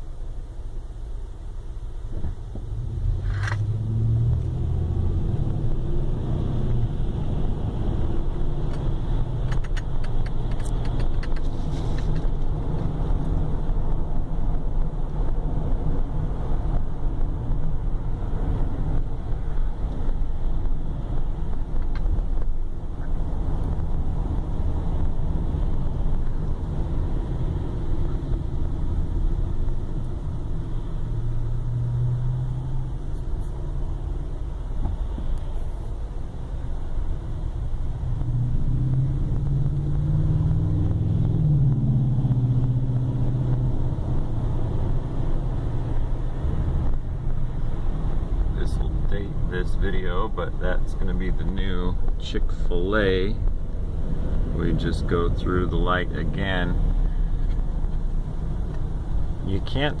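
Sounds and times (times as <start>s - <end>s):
car engine and road rumble: 0.0s - 60.0s.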